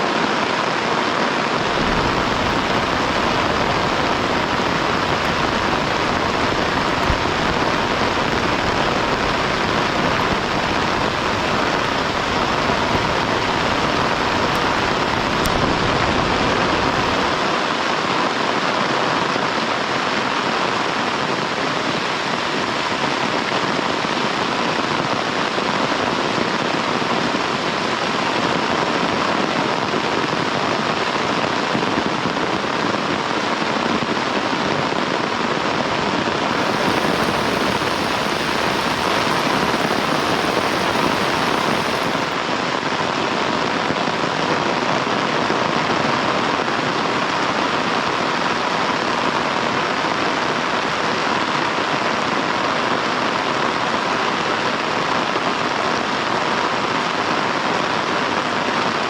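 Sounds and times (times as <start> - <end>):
heavy rain falling: 1.6 - 17.5, 36.4 - 42.4.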